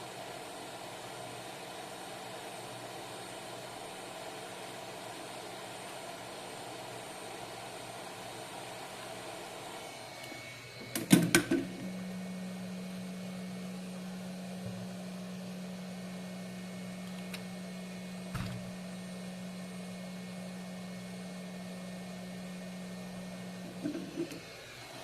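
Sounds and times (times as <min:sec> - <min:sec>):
hot-air station blowing hiss: 0:00.0 - 0:25.0
steady low hum: 0:09.8 - 0:24.6.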